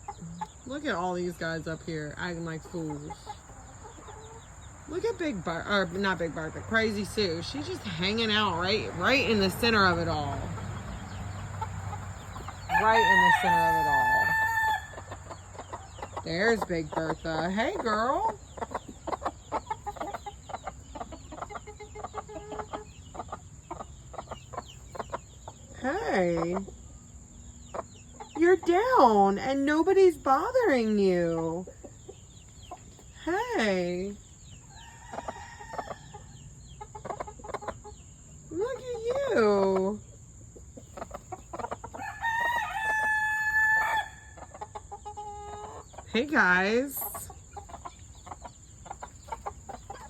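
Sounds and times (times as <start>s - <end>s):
drawn-out hen call: 0.0s - 27.0s, 40.8s - 50.0s
chickens clucking: 0.0s - 50.0s
rooster crowing: 12.6s - 15.2s, 41.9s - 44.4s.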